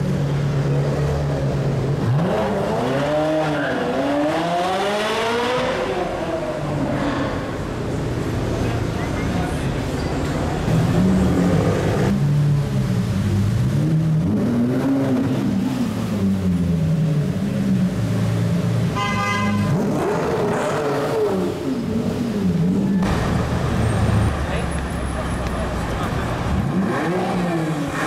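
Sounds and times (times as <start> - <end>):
car engine revving: 0.6 - 7.8, 10.6 - 28.0
car horn: 18.9 - 20.1.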